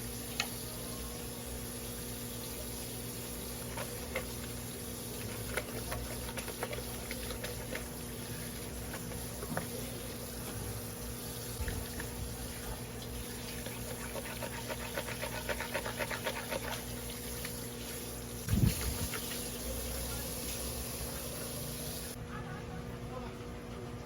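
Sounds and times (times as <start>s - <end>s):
steady hum: 0.0s - 23.3s
knife scraping fish: 13.5s - 17.6s.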